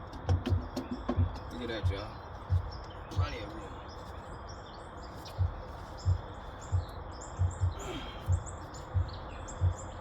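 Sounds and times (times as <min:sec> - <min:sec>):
birds chirping: 0:00.0 - 0:10.0
low dull thumps: 0:05.4 - 0:10.0.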